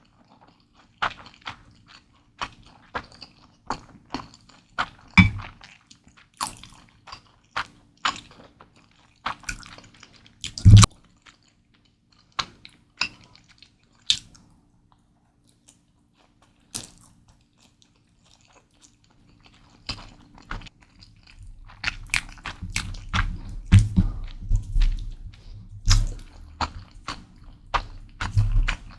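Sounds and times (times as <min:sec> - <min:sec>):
wet chewing and bites: 0:00.1 - 0:14.4, 0:15.6 - 0:28.9
low thud: 0:21.4 - 0:28.9.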